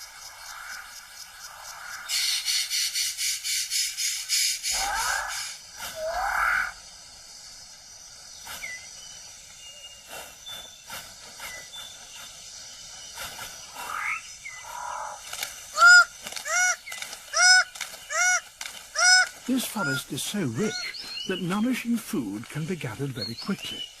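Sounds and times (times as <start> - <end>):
faint bird chirps and whistles: 8.1 - 15.2
loud honking bird call: 15.8 - 21.0.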